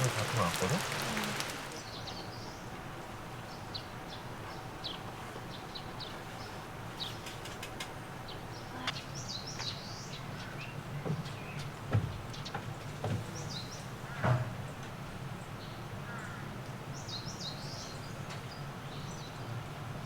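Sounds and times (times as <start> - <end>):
small birds chirping: 0.0 - 2.7, 8.2 - 14.0.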